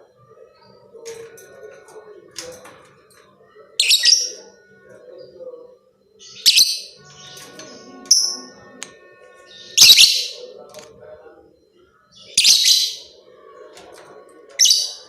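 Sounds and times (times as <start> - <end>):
faint bird chattering: 3.7 - 8.8, 12.0 - 13.2, 14.4 - 15.0.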